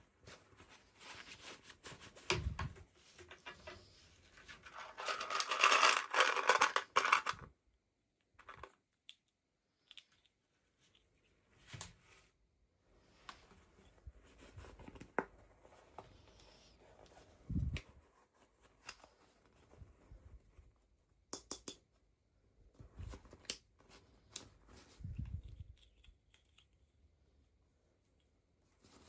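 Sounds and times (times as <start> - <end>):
plastic and cardboard crinkling: 0.1 - 7.5.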